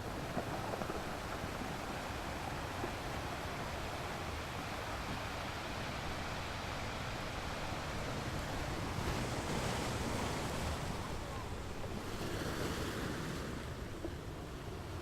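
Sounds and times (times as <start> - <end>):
sea surf: 0.0 - 15.0.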